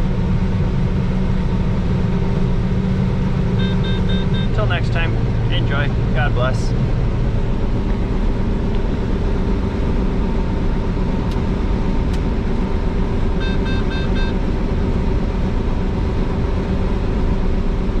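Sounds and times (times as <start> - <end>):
combine harvester running: 0.0 - 18.0
short beeps: 3.6 - 4.6, 13.4 - 14.4.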